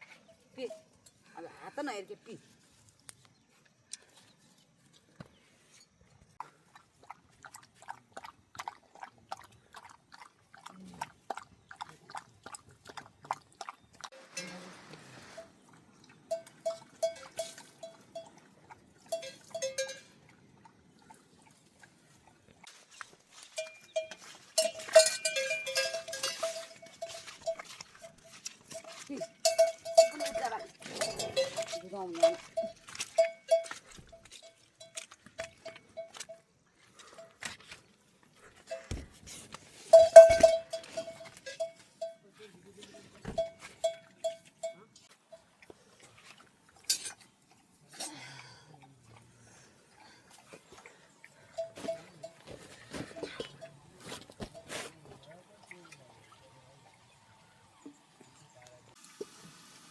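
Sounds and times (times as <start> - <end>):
livestock bells clanking: 14.1 - 15.6, 16.3 - 18.5, 19.1 - 20.2, 23.4 - 36.5, 39.8 - 45.5, 51.4 - 54.8
short ringing tones: 39.9 - 42.2.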